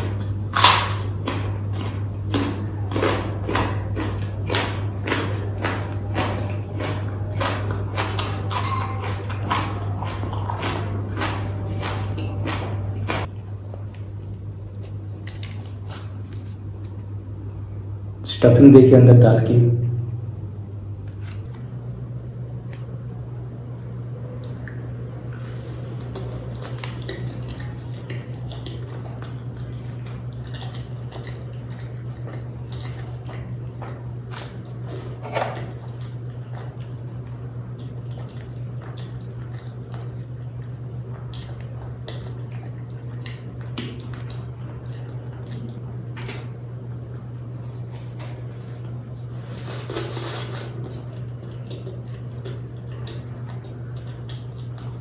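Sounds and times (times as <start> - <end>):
crunchy chewing and biting: 0.0 - 18.0, 21.0 - 23.4, 24.3 - 55.0
steady low hum: 0.0 - 55.0.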